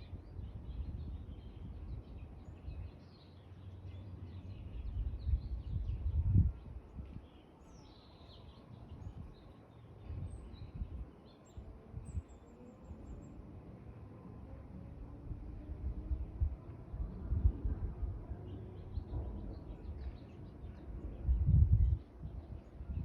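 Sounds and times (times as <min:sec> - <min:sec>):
small birds chirping: 0:00.0 - 0:13.5, 0:18.3 - 0:23.0.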